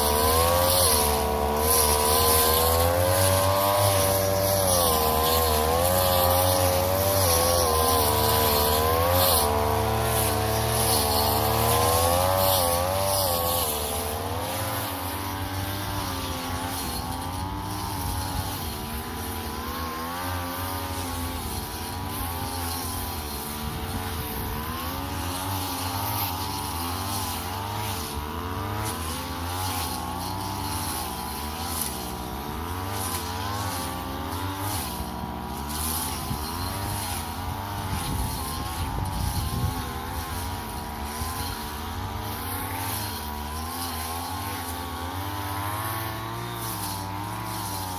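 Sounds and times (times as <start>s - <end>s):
brush cutter engine revving: 0.0s - 47.9s.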